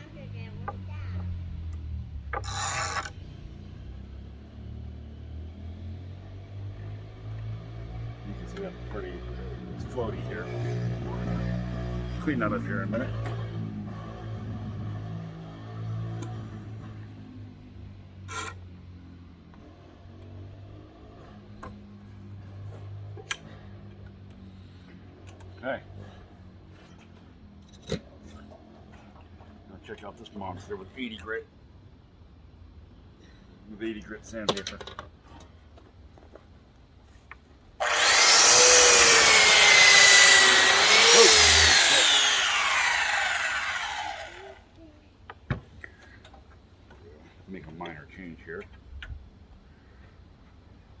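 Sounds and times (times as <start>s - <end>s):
scrape on workbench: 2.4s - 3.2s
power sander whining: 37.8s - 44.8s.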